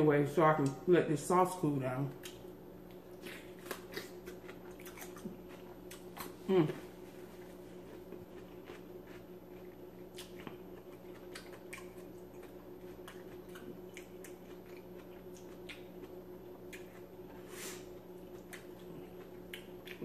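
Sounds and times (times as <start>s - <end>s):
chewing with wet mouth clicks: 2.1s - 6.4s, 8.0s - 17.2s, 18.2s - 20.0s.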